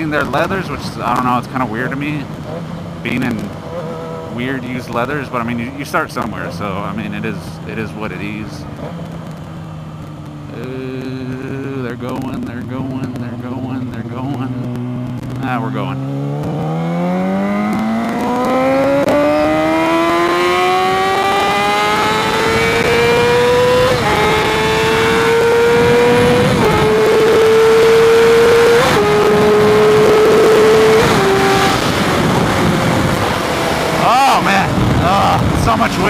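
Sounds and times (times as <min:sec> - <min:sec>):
motorcycle engine accelerating: 0:00.0 - 0:36.0
wind noise on microphone: 0:20.9 - 0:36.0.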